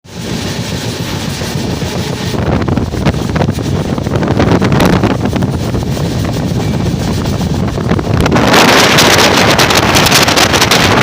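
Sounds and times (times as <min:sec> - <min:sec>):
passenger train running and rattling: 0:00.0 - 0:11.0
wind buffeting microphone: 0:00.1 - 0:11.0.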